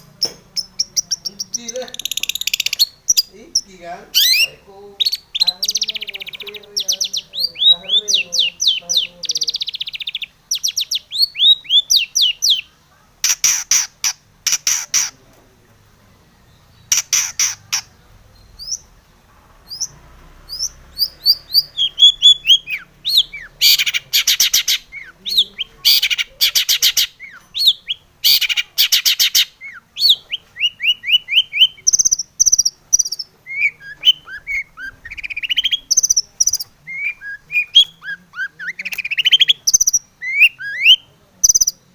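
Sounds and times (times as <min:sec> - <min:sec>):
shrike singing: 0:00.0 - 0:15.2, 0:15.8 - 0:41.9.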